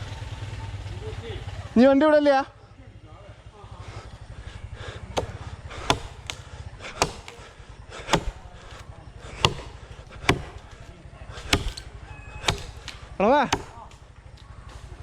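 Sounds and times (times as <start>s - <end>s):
low steady hum: 2.5s - 15.0s
blade chopping wood: 5.1s - 15.0s.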